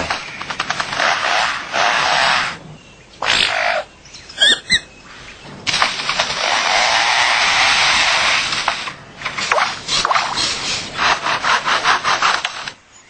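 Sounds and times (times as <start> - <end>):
lyrebird mimicking a chainsaw: 0.0 - 2.6, 3.2 - 4.9, 5.7 - 12.7.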